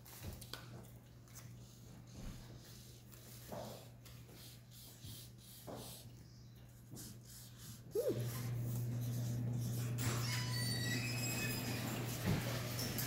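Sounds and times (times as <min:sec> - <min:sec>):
short squeak: 0:09.9 - 0:12.2.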